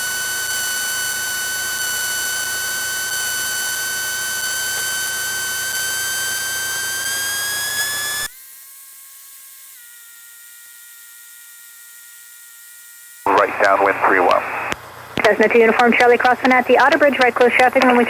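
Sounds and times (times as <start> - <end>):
faint electrical whine: 9.1 - 18.0
aircraft engine whine: 13.3 - 18.0.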